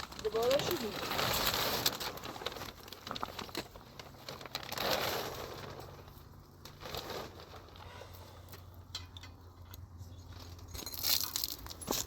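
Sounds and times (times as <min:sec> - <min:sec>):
plastic sheeting rustling: 0:00.0 - 0:08.2.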